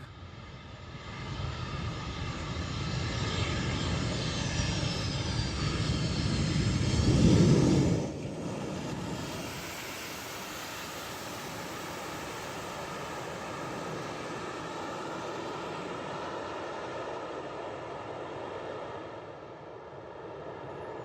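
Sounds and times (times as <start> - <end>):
airplane engine whine: 0.0 - 21.0.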